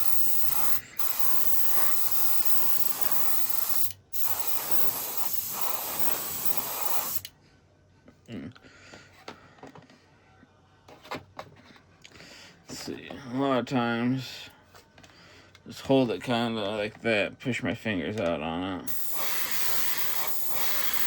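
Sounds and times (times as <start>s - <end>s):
spray paint can hissing: 0.0s - 7.3s, 18.9s - 21.0s.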